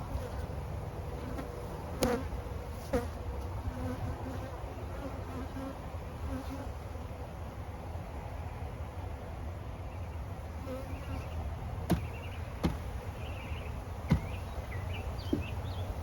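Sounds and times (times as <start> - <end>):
bees buzzing: 10.6 - 16.0.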